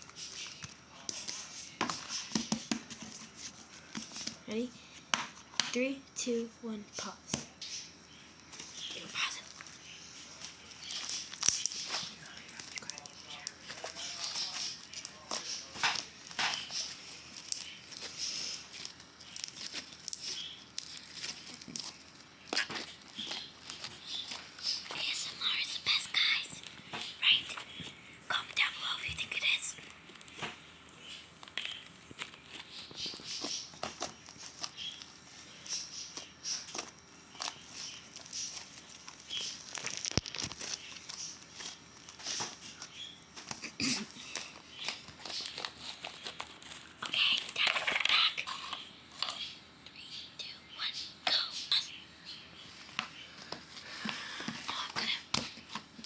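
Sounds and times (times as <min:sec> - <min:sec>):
slime squelching by hand: 0:08.6 - 0:25.2.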